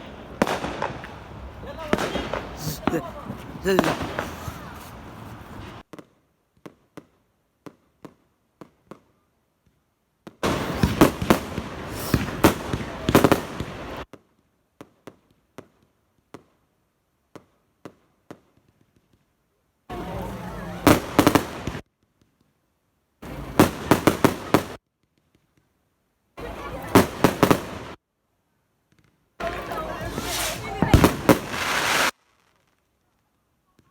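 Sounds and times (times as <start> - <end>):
firework bangs: 0.0 - 5.8, 10.4 - 14.1, 19.9 - 21.8, 23.2 - 24.8, 26.4 - 28.0, 29.4 - 32.5
firework crackling and popping: 10.4 - 16.6, 19.9 - 22.5, 23.2 - 25.7, 26.4 - 28.0, 28.9 - 33.9.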